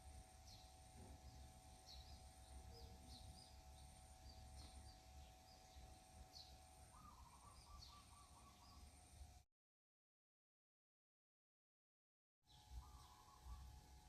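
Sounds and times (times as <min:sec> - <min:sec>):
bird chirps: 0:00.4 - 0:09.0, 0:12.5 - 0:13.8.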